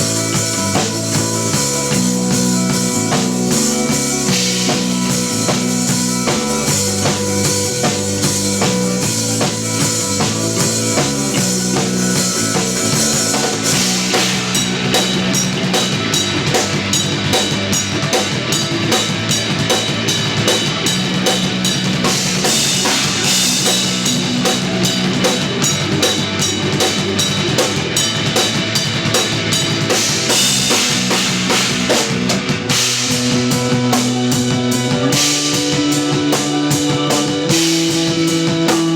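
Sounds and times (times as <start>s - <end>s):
drum kit: 0.0s - 38.9s
electric bass: 0.0s - 38.9s
electric guitar: 0.0s - 38.9s.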